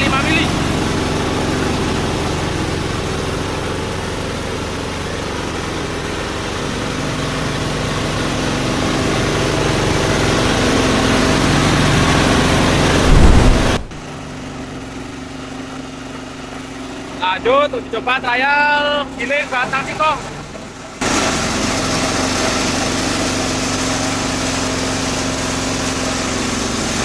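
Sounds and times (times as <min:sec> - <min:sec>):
diesel engine driving grinder: 0:00.0 - 0:27.0
loud low thump: 0:12.9 - 0:14.0.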